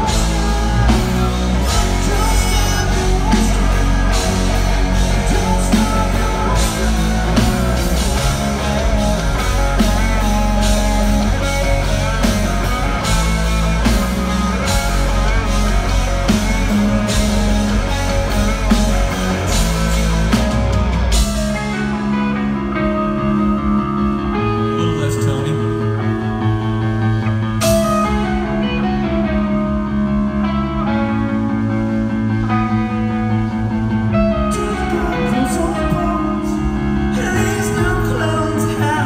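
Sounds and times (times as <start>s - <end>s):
drum kit: 0.0s - 25.6s, 26.5s - 29.6s
bass guitar: 0.0s - 39.0s
electric guitar: 0.0s - 39.0s.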